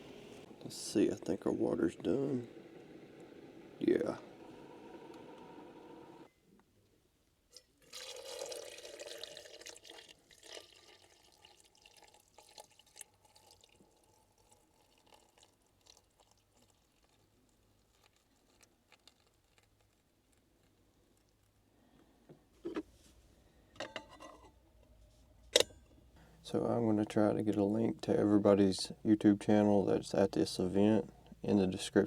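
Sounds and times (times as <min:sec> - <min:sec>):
hot water pouring into cup: 0:00.2 - 0:06.3, 0:07.6 - 0:19.7.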